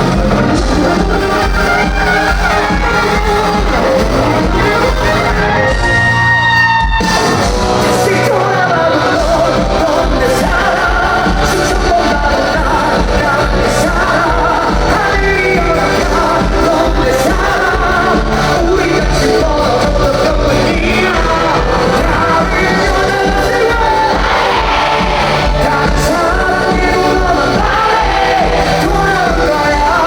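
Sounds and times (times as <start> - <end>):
bass beat: 0.0 - 30.0
live pop-rock band: 0.0 - 30.0
person singing: 7.4 - 30.0.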